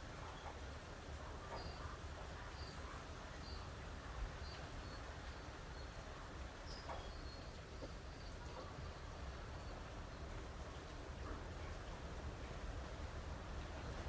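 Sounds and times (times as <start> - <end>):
faint bird chirping: 1.5 - 10.2.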